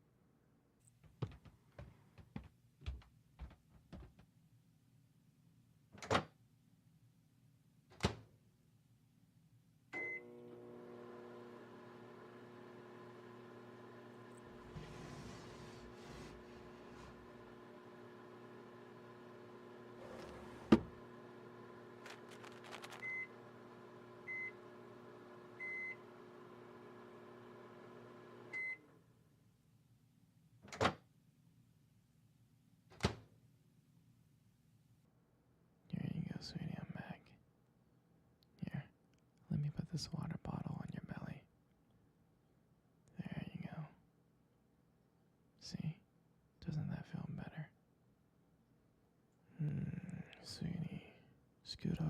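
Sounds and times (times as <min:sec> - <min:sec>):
microwave beep: 0:10.0 - 0:10.5, 0:22.9 - 0:23.5, 0:24.2 - 0:24.8, 0:25.6 - 0:26.1, 0:28.5 - 0:28.9
microwave oven humming: 0:10.0 - 0:29.2.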